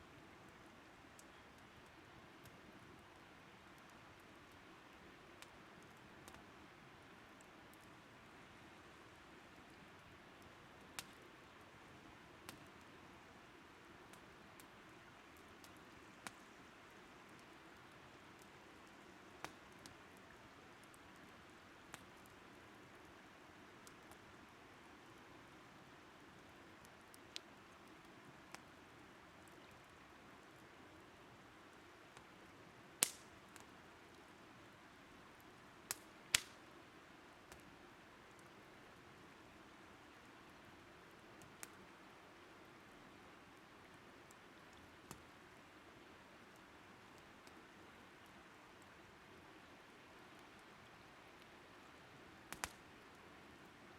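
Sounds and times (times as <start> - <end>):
wood fire crackling: 0.0 - 53.8
sharp fire pops: 33.0 - 33.3, 35.9 - 36.6, 52.5 - 52.8.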